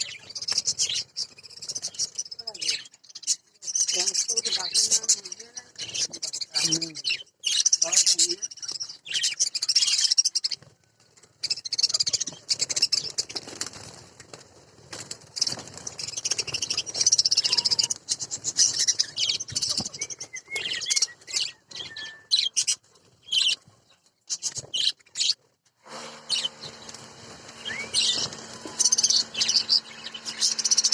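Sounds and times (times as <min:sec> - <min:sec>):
budgerigars chattering: 0:00.0 - 0:10.4, 0:26.3 - 0:30.9
steady low hum: 0:25.8 - 0:30.9.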